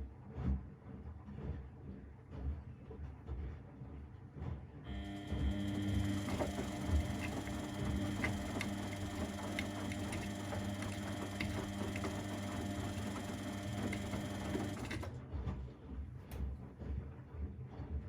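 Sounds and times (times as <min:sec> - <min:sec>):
laundry machine motor hum: 0:04.9 - 0:15.2.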